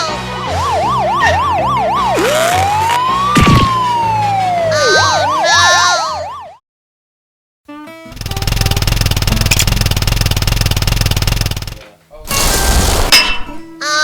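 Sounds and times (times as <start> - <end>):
police siren wailing: 0.0 - 6.6.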